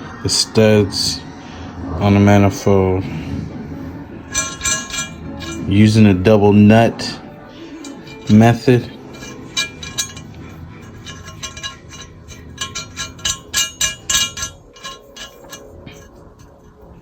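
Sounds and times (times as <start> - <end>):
nuts and wrench clinking on metal: 4.3 - 6.0, 7.7 - 17.0.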